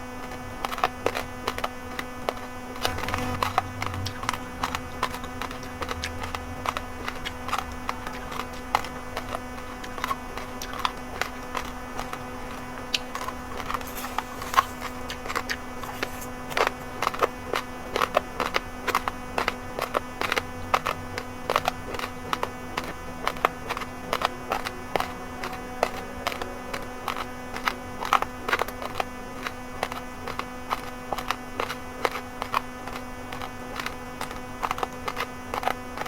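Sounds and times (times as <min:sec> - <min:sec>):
rice grains crunching when chewed: 0:00.3 - 0:36.0
low hum: 0:02.8 - 0:17.4.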